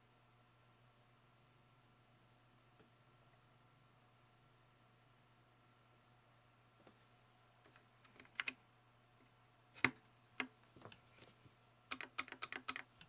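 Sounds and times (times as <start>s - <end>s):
mechanical keyboard typing: 8.1s - 8.6s, 11.9s - 13.0s.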